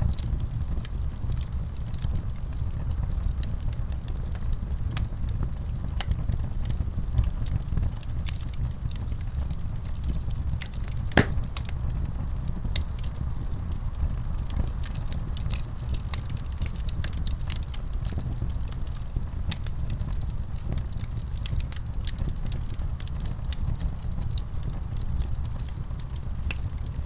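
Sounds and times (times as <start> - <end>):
wood fire crackling and popping: 11.2 - 11.7.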